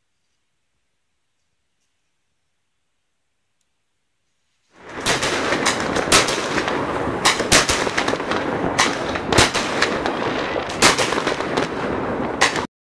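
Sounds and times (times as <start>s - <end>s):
fireworks crackling and rumbling: 4.6s - 12.7s
loud firework bangs: 4.8s - 12.7s.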